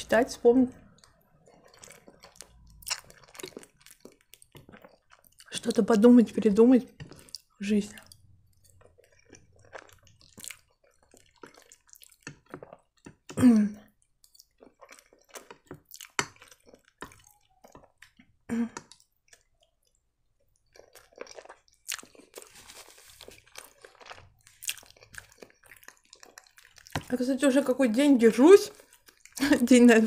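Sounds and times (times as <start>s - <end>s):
chewing pasta: 0.7s - 27.8s, 28.6s - 30.0s
wet mouth sounds: 0.8s - 5.5s
soft rustle: 22.4s - 23.5s.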